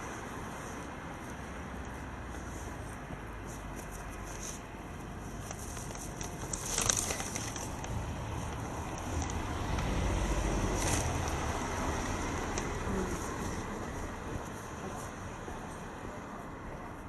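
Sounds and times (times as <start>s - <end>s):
street traffic: 0.0s - 17.0s
motor vehicle rumbling past: 6.8s - 16.5s.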